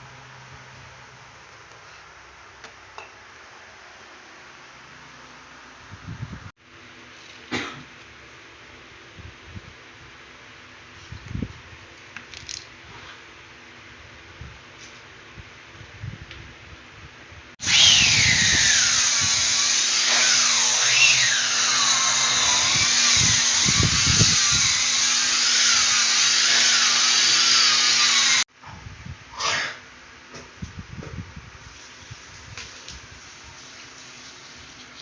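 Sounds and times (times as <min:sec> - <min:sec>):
power tool motor whine: 0:17.6 - 0:28.4.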